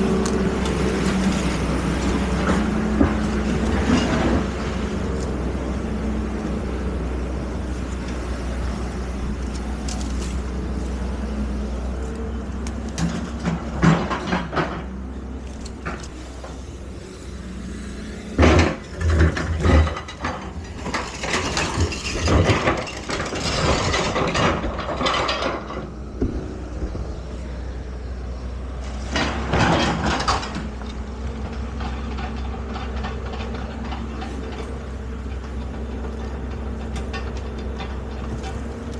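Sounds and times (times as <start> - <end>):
excavator engine running: 0.0 - 38.9
metal clanking and clattering: 1.0 - 4.8, 13.0 - 14.9, 18.4 - 27.1, 29.0 - 38.8.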